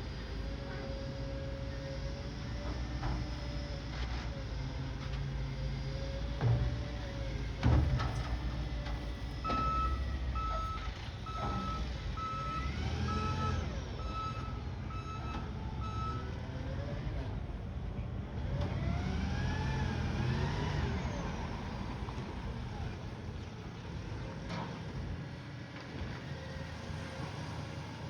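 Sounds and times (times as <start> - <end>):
truck engine rumble: 0.0 - 28.0
reversing alarm beeping: 9.4 - 16.3.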